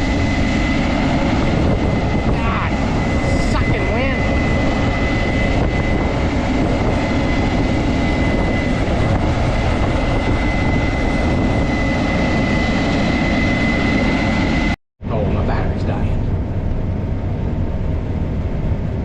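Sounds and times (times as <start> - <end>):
high whine: 0.0 - 19.0.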